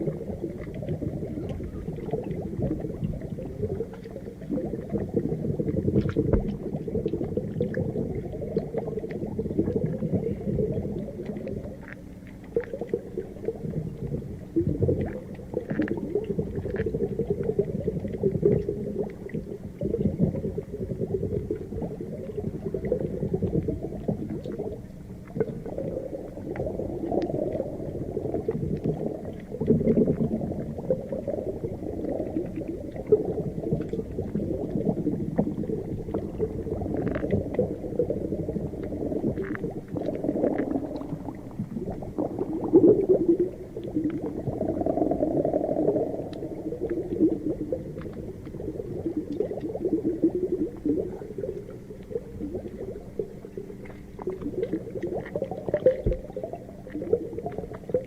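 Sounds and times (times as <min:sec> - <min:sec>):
underwater bubbling and gurgling: 0:00.0 - 0:58.0
faint clicks: 0:15.0 - 0:17.0.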